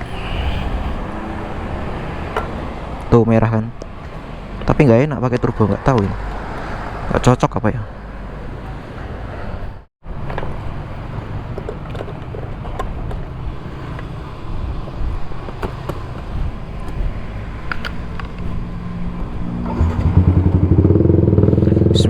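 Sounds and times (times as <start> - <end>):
traffic and engine noise: 0.0 - 22.0
motorcycle engine running: 19.4 - 22.0.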